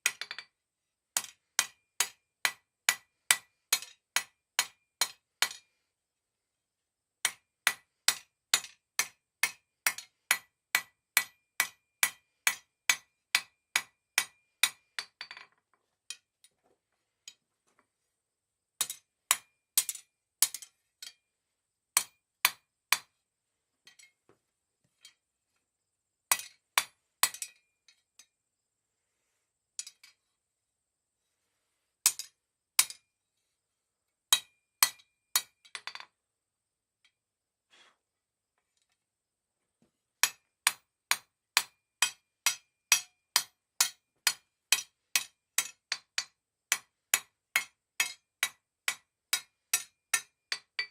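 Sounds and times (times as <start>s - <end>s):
hammer striking steel on an anvil: 1.2s - 5.7s, 7.2s - 15.4s, 18.8s - 21.2s, 22.0s - 23.1s, 26.3s - 27.6s, 32.1s - 33.1s, 34.3s - 36.0s, 40.2s - 50.9s.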